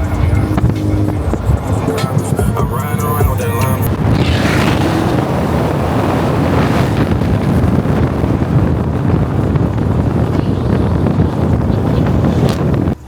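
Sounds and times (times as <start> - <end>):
moving car rumble: 0.0 - 13.0
wind buffeting microphone: 0.0 - 13.0.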